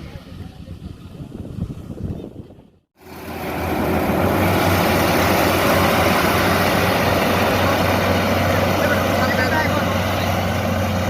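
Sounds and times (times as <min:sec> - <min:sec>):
combine harvester running: 0:03.0 - 0:11.0.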